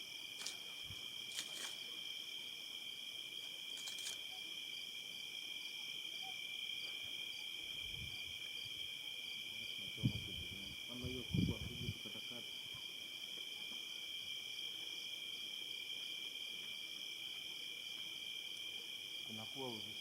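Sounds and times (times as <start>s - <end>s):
pulsing insect trill: 0.0s - 12.9s
insects trilling: 0.0s - 20.0s.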